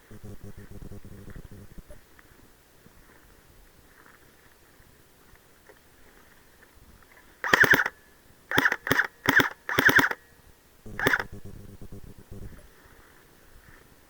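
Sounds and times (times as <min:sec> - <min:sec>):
low quiet noise: 0:00.0 - 0:07.4, 0:10.3 - 0:14.0
airsoft gun firing bursts: 0:07.4 - 0:10.2, 0:10.9 - 0:12.3.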